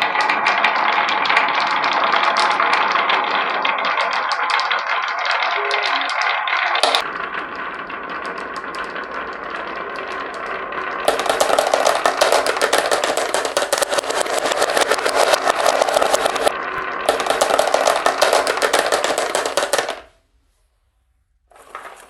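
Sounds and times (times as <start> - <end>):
marbles rolling on wood: 0.0 - 20.2
rapid clattering: 6.8 - 20.1.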